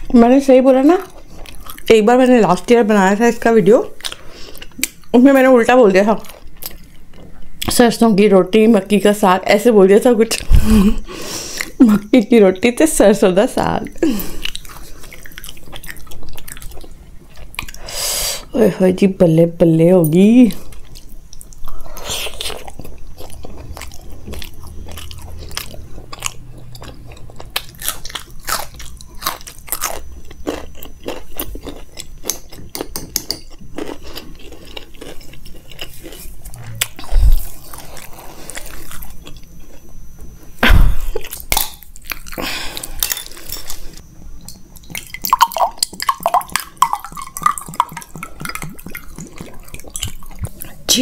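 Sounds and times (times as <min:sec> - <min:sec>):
wet chewing and smacking: 0:01.0 - 0:02.0, 0:06.1 - 0:07.7, 0:14.3 - 0:17.8, 0:20.6 - 0:40.3, 0:41.0 - 0:50.8.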